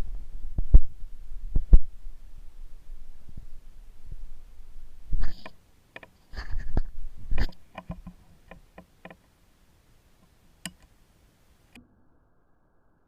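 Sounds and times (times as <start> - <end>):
rustling scrapes: 2.0 - 5.6, 6.2 - 8.3
sharp clicks: 10.2 - 10.9.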